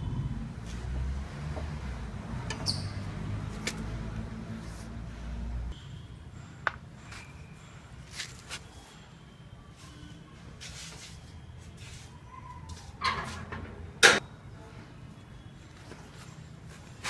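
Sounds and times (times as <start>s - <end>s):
motorcycle wheel squeaking: 2.4s - 3.4s.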